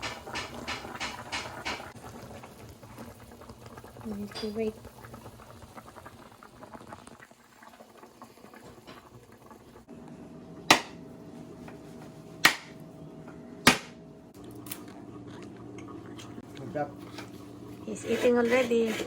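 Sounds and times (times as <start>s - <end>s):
steady hum: 9.8s - 18.1s
loud sharp knocks: 13.7s - 14.0s.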